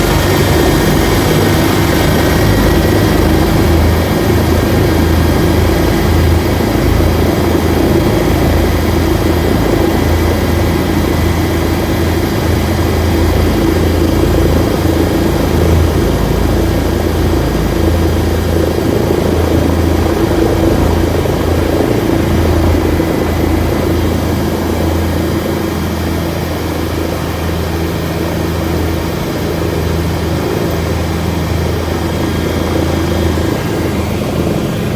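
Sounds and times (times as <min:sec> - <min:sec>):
high whine: 0:00.0 - 0:27.7
helicopter engine and rotor drone: 0:00.0 - 0:34.9.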